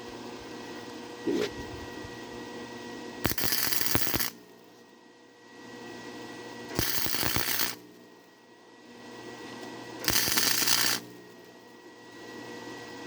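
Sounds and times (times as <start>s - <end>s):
welder arc crackling: 3.2s - 4.4s, 6.8s - 7.8s, 10.0s - 11.2s.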